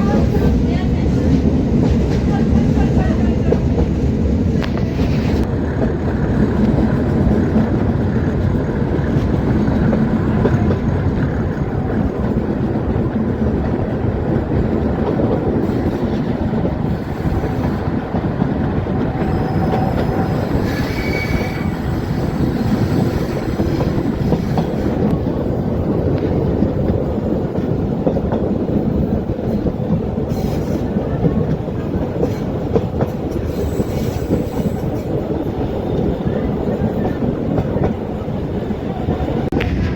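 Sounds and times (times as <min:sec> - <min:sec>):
train wheels rumbling on rails: 0:00.0 - 0:39.9
faint wheel squeal: 0:19.2 - 0:23.6.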